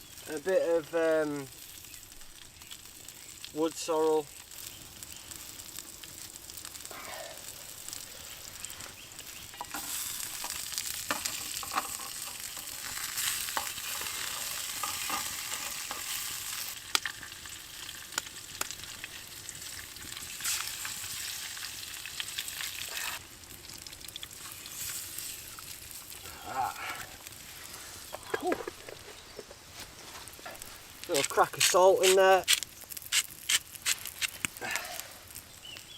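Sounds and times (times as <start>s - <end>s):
food sizzling in a pan: 0.0s - 28.2s.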